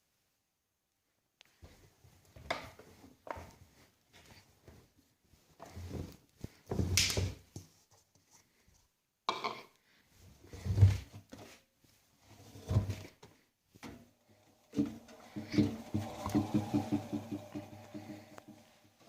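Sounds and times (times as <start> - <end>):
washing machine drum turning: 13.9 - 19.0.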